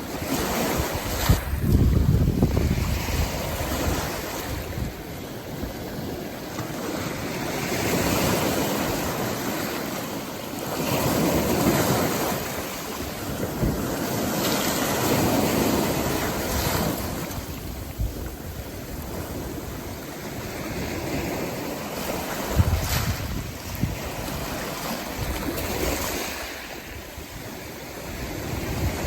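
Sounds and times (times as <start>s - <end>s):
wind buffeting microphone: 0.0s - 9.8s, 10.8s - 29.0s
heavy surf breaking: 0.0s - 29.0s.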